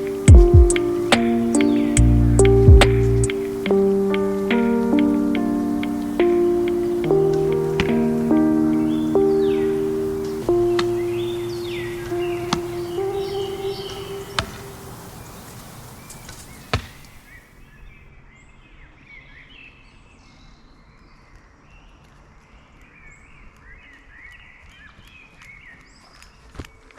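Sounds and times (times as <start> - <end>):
background music: 0.0 - 15.0
small birds chirping: 0.0 - 17.8.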